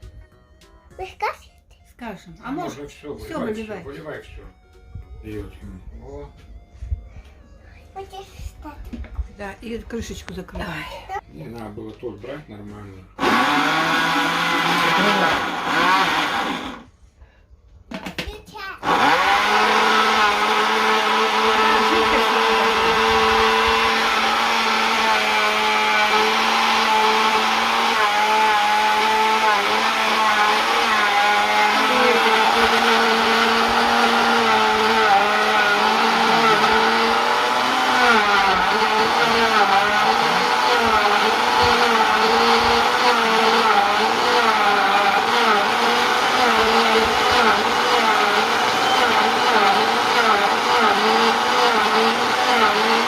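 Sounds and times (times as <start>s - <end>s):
electric blender running: 2.4s - 4.2s, 13.2s - 16.9s, 18.8s - 53.0s.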